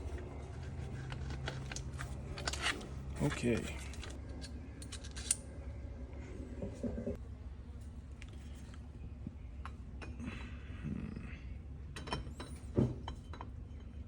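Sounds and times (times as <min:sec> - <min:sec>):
small metal parts clicking: 0:03.6 - 0:05.4.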